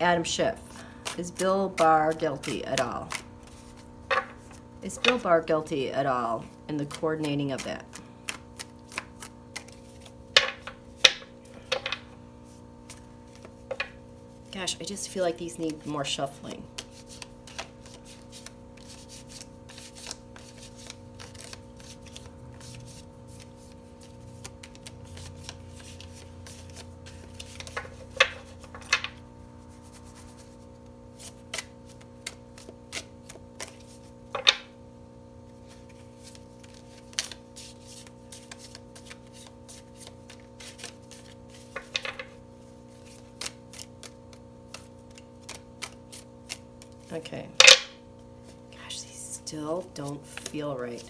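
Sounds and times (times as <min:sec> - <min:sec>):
faint steady hum: 0:00.0 - 0:51.0
cards being shuffled: 0:00.3 - 0:05.6, 0:06.3 - 0:14.4, 0:15.4 - 0:34.8, 0:35.5 - 0:48.7, 0:49.8 - 0:51.0
cards snapping: 0:06.8 - 0:12.0, 0:16.7 - 0:29.2, 0:31.2 - 0:34.7, 0:35.7 - 0:47.9.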